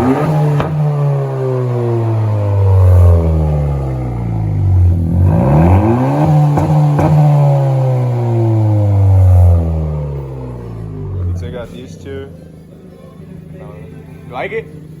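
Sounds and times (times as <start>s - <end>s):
exhaust pops: 0.0s - 1.3s, 2.5s - 10.0s
car engine revving: 0.0s - 15.0s.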